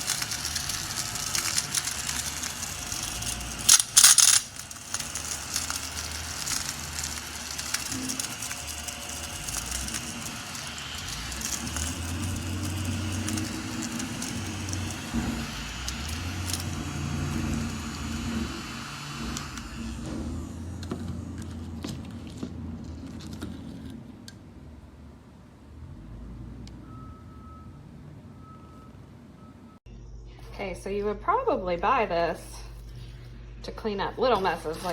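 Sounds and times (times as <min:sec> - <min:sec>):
cordless vacuum cleaner running: 0:00.0 - 0:22.6
debris rattling into vacuum: 0:00.0 - 0:23.5.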